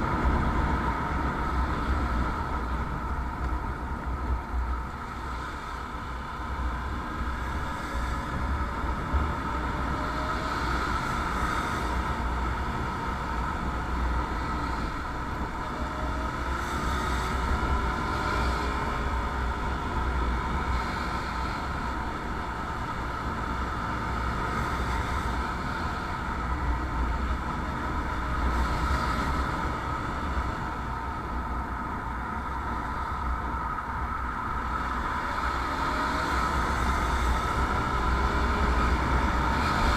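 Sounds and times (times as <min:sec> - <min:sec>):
motorcycle engine drone: 0:00.0 - 0:39.9
wind rushing on microphone: 0:00.0 - 0:39.9.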